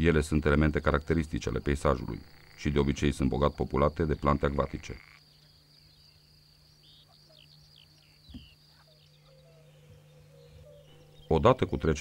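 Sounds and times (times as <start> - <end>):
low steady hum: 0.0 - 12.0
bird chirps: 4.2 - 12.0.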